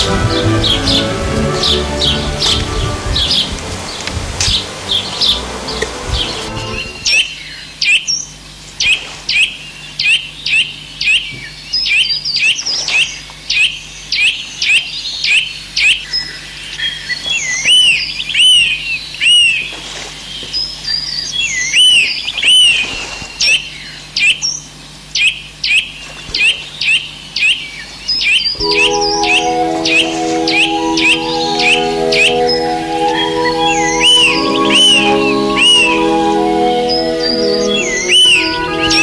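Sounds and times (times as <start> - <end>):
bird chirping: 28.4 - 39.0
looping bird call: 28.6 - 39.0.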